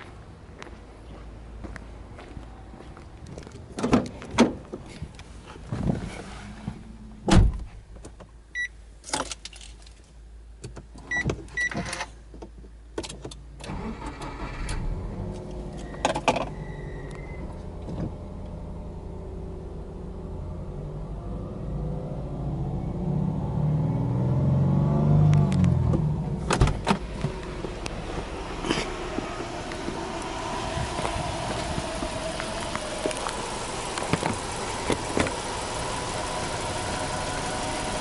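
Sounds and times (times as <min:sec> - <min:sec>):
car door shutting: 0:05.7 - 0:08.2, 0:25.3 - 0:35.6
engine starter cranking: 0:13.6 - 0:14.9
car engine idling: 0:25.6 - 0:38.0.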